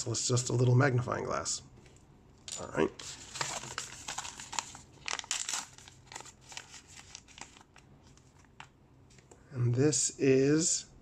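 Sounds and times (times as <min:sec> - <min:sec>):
plastic packaging crinkling: 0:03.0 - 0:08.7.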